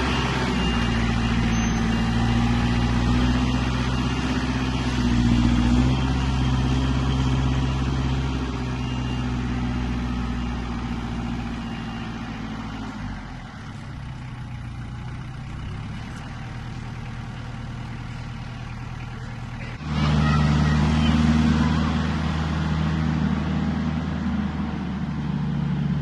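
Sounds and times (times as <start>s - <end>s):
vehicle engine humming: 0.0s - 26.0s.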